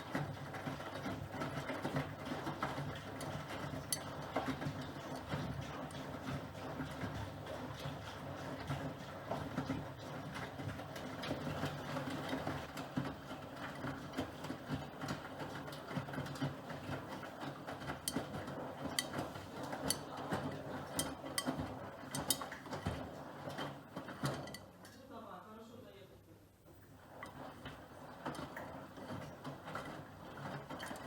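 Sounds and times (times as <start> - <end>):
washing machine drum churning: 0.0 - 24.9, 26.8 - 31.0.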